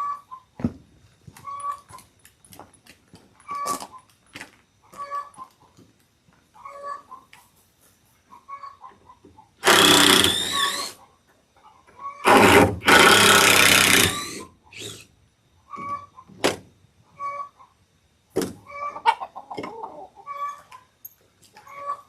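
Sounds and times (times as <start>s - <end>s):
hens clucking: 4.8s - 5.9s, 6.5s - 7.5s, 8.2s - 9.6s, 11.0s - 12.3s, 17.0s - 17.8s, 18.6s - 20.9s, 21.6s - 22.0s.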